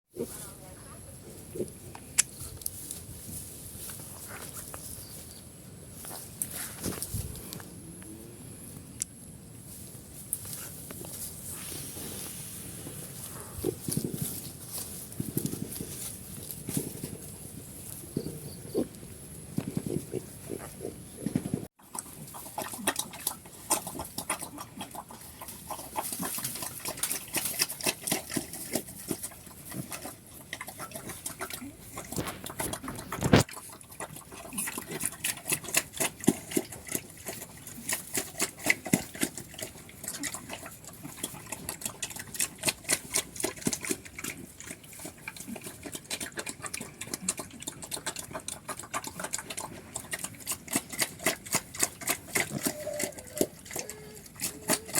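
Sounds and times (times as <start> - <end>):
pigs making clicking noises: 13.6 - 54.9.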